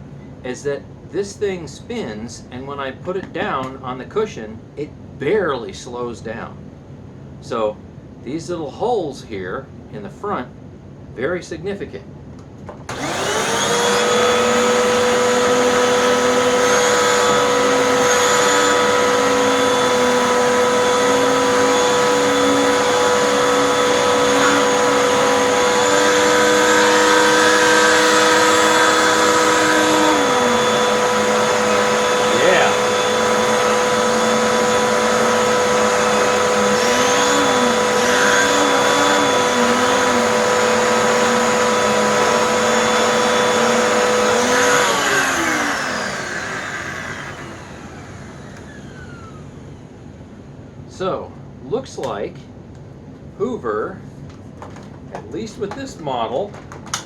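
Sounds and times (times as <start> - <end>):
vacuum cleaner running: 12.8 - 52.2, 54.2 - 57.0.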